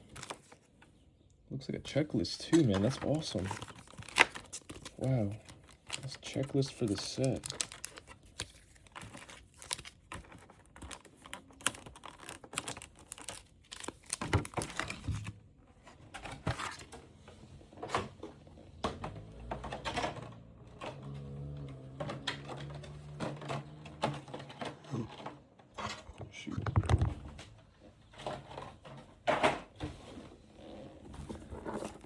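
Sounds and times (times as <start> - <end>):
cardboard and plastic packaging crinkling: 0.0 - 1.0, 1.9 - 32.0.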